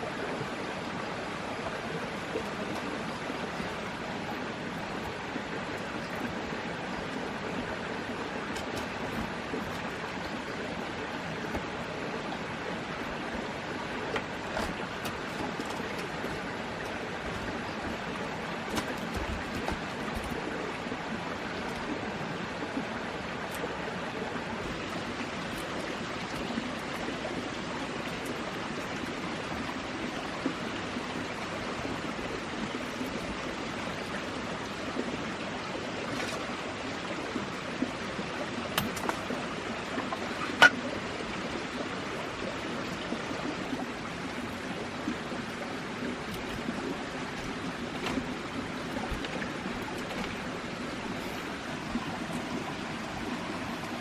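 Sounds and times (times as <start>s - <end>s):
running water: 0.0s - 54.0s
faint clicks and knocks: 46.2s - 51.4s.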